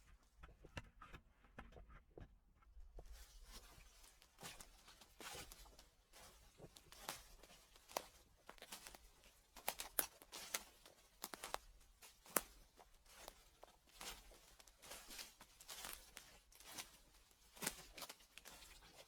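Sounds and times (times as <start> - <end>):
footsteps crunching dry leaves: 4.5 - 13.4, 14.0 - 18.8.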